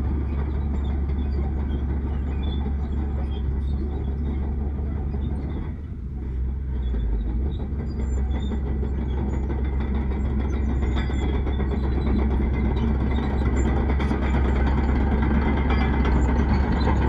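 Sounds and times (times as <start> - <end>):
diesel engine rumble: 0.0 - 17.0.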